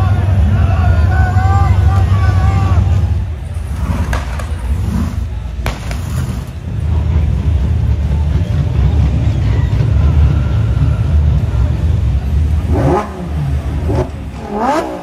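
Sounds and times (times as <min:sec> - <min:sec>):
car engines rumbling: 0:00.0 - 0:15.0
sharp crack: 0:03.9 - 0:06.6.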